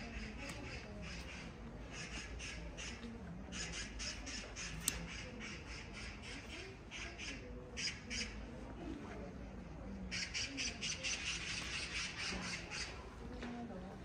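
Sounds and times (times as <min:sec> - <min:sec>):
faint distant voices: 0:00.0 - 0:14.0.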